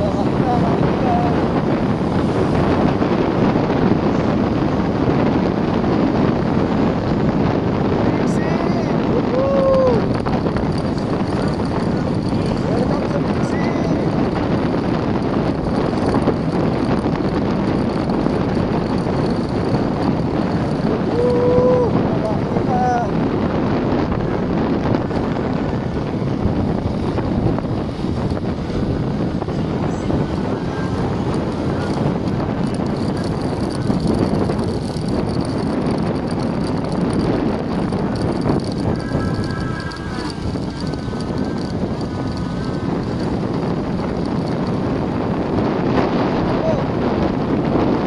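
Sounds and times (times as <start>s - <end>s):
vehicle engine and road noise: 0.0s - 48.0s
wind on microphone: 0.0s - 48.0s.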